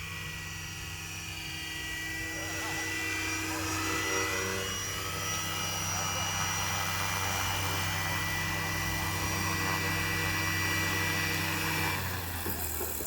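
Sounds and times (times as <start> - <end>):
model helicopter rotor hum: 0.0 - 13.0.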